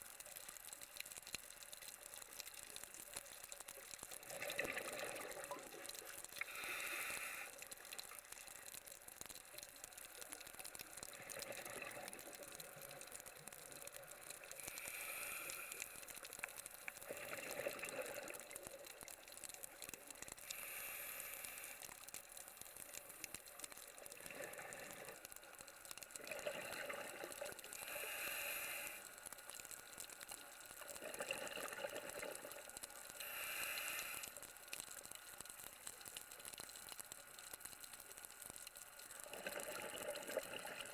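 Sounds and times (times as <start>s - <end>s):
regulator hissing inhale: 6.4s - 7.6s, 14.6s - 16.2s, 20.4s - 22.0s, 27.7s - 29.2s, 33.2s - 34.4s.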